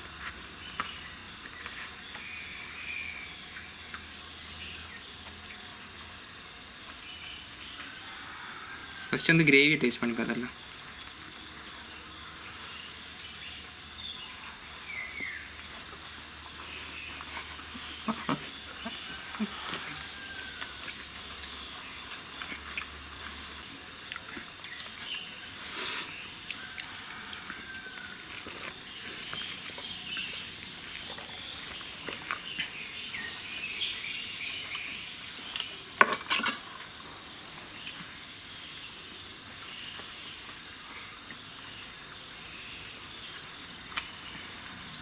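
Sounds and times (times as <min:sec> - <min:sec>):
cutlery clinking on a plate: 0:35.6 - 0:36.9.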